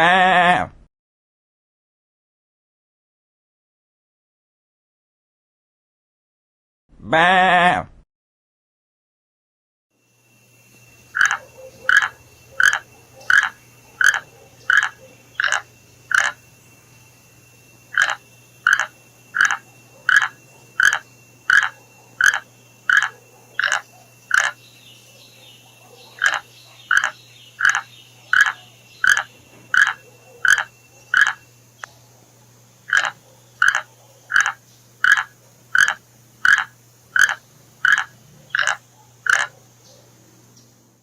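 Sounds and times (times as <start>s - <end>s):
animal calling: 10.9s - 40.2s.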